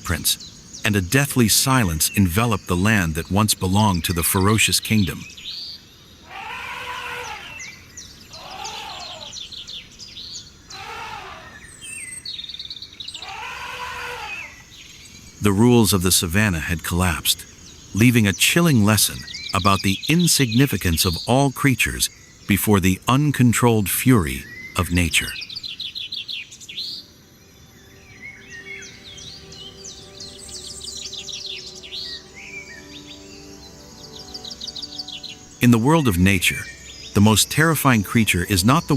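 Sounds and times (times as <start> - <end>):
high bird chirps and trills: 0.0 - 38.9
bird call rising and falling: 6.2 - 12.4, 13.1 - 27.0
faint low musical drone: 27.0 - 38.9.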